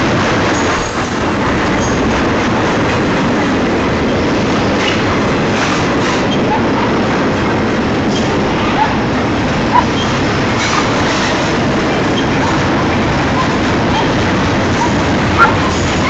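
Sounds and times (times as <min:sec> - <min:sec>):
train wheels on rail: 0:00.0 - 0:16.0
wheel squeals: 0:13.2 - 0:14.2, 0:14.8 - 0:16.0.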